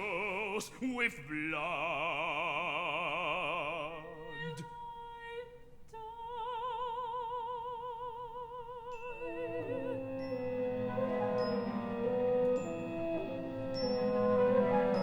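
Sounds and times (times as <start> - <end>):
instruments playing: 9.2 - 15.0.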